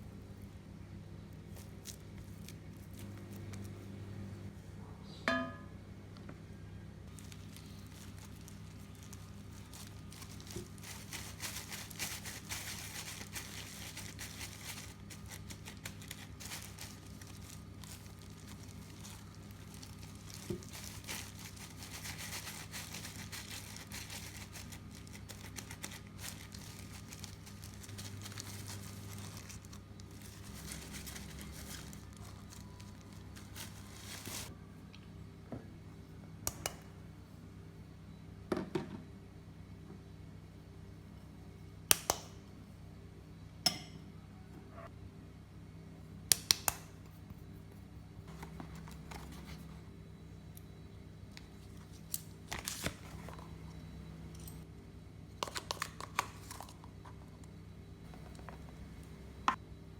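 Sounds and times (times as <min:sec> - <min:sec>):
steady low hum: 0:00.0 - 0:59.9
crinkling and rustling: 0:07.1 - 0:34.5, 0:48.3 - 0:49.9, 0:51.4 - 0:53.6.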